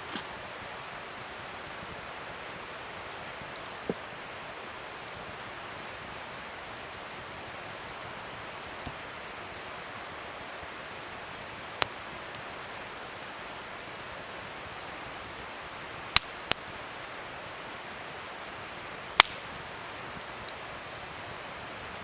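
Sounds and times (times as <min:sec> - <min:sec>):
wood fire hissing: 0:00.0 - 0:22.0
sharp pops of fire: 0:16.0 - 0:16.8, 0:19.1 - 0:21.1.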